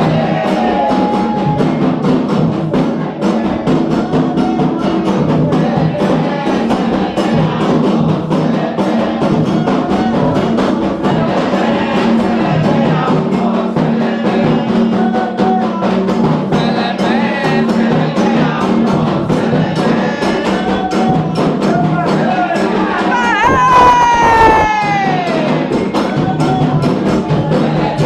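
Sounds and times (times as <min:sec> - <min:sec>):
hand drums fast rhythm: 0:00.0 - 0:28.0
voices singing: 0:00.0 - 0:28.0.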